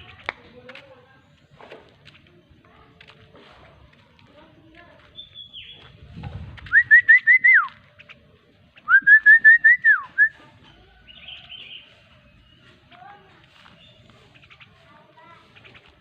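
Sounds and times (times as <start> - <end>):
person whistling: 6.7 - 7.7, 8.9 - 10.4.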